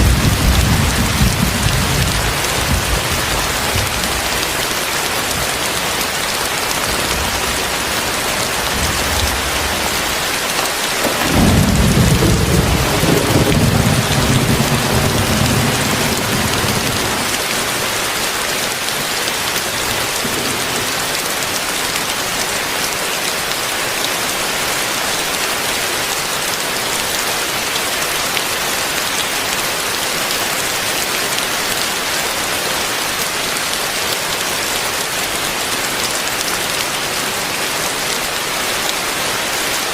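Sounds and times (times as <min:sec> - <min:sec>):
thunder rumble: 0:00.0 - 0:04.2, 0:11.0 - 0:17.8
heavy rain falling: 0:00.0 - 0:39.9.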